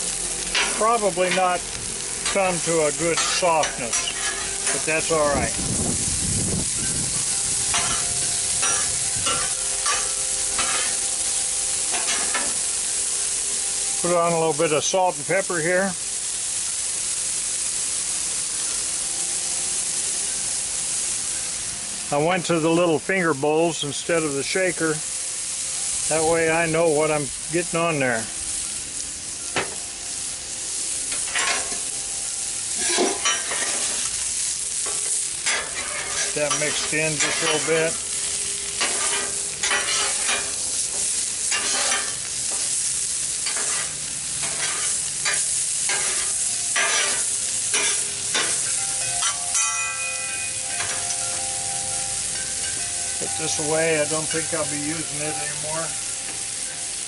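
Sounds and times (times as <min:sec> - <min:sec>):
vegetables sizzling on a griddle: 0:00.0 - 0:57.0
metal spatula scraping: 0:02.2 - 0:05.2, 0:06.8 - 0:11.0, 0:11.9 - 0:12.6, 0:31.1 - 0:31.9, 0:32.7 - 0:34.1, 0:34.7 - 0:42.7, 0:43.4 - 0:49.8.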